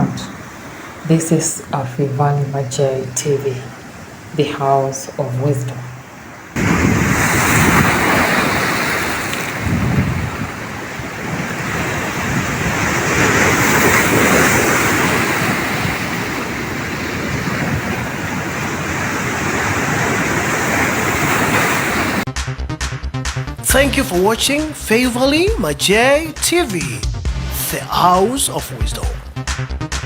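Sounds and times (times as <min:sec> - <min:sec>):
wind buffeting microphone: 0:00.0 - 0:04.4, 0:05.8 - 0:22.2
sea waves washing in: 0:00.0 - 0:22.3.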